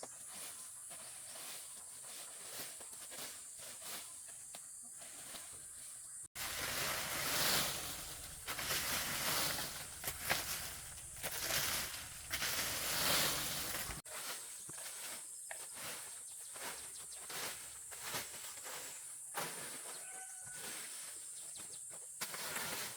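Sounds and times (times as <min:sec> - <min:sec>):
insects buzzing: 0:06.4 - 0:14.0
rustling noise: 0:06.4 - 0:21.1.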